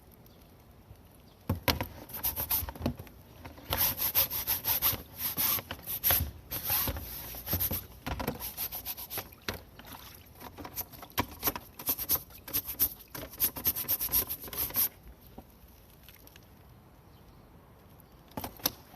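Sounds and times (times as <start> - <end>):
scrubbing a metal filter: 1.8 - 2.9, 3.5 - 15.0.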